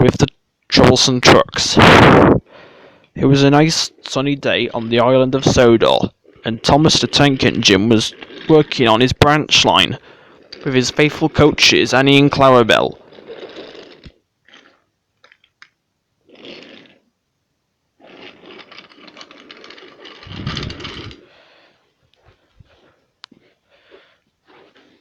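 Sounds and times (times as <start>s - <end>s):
toy train clattering on wooden track: 18.2s - 21.2s.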